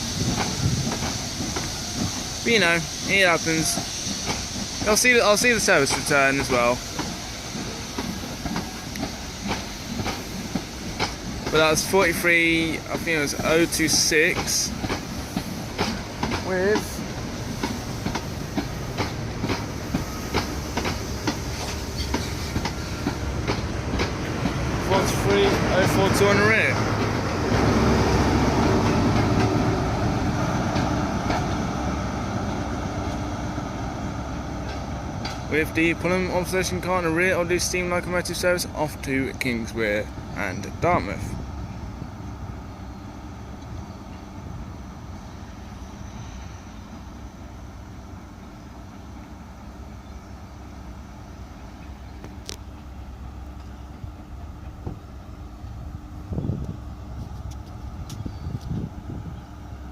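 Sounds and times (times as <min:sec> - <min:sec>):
train engine running: 0:00.0 - 0:59.9
wheels clicking over rail joints: 0:03.7 - 0:27.2.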